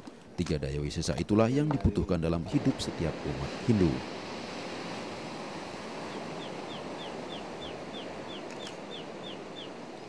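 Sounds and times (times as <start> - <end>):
steady outdoor hiss: 0.0 - 10.0
bird chirping: 6.1 - 10.0.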